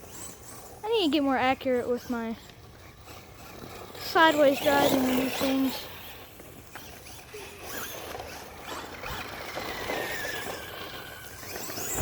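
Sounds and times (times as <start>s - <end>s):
rc truck motor whine: 0.0s - 12.0s
tyres scrabbling on ground: 2.9s - 12.0s.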